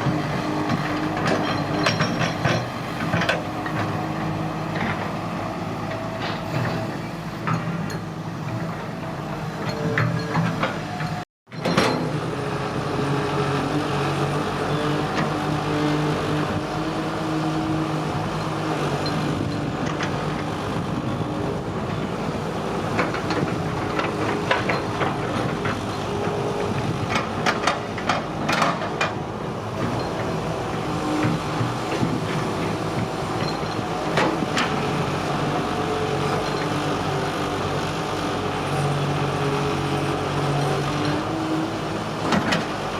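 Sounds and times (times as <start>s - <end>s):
excavator diesel engine running: 0.0s - 42.9s
sharp metal clanks and knocks: 1.2s - 3.9s, 9.6s - 12.2s.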